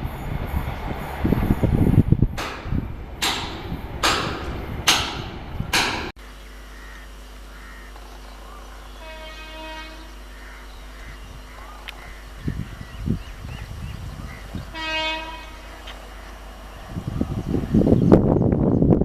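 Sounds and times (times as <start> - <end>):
train wheels clacking on rails: 0.0 - 6.1
steady hum: 0.0 - 19.0
faint train horn: 8.9 - 11.2, 14.3 - 16.4.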